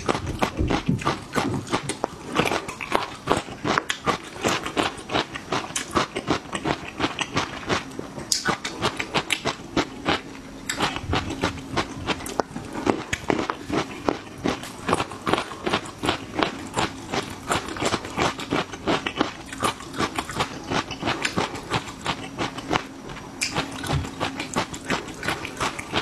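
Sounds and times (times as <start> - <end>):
wet mouth clicks: 8.3 - 8.7.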